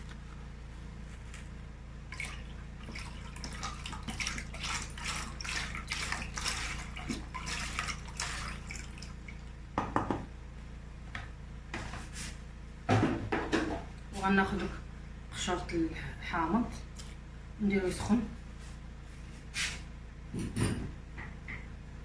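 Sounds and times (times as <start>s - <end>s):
low steady hum: 0.0s - 22.0s
knock: 9.8s - 10.3s.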